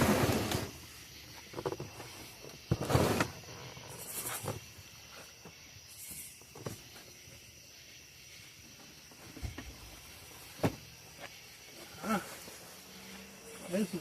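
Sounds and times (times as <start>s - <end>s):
cardboard scraping and rustling: 1.5s - 4.7s.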